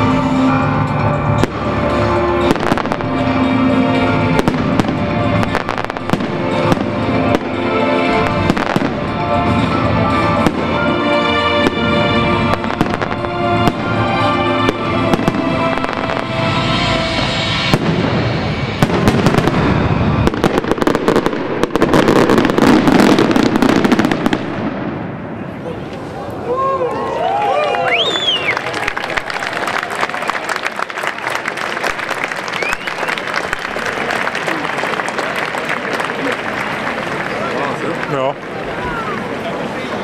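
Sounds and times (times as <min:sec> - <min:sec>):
music: 0:00.0 - 0:23.9
fireworks bangs: 0:01.4 - 0:25.4.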